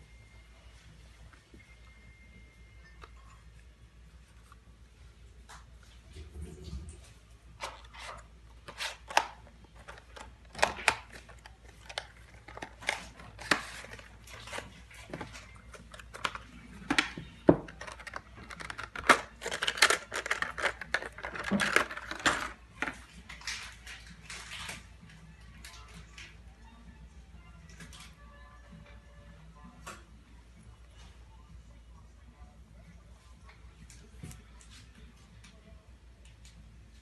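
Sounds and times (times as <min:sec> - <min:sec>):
plastic packaging crinkling: 0:07.6 - 0:23.0.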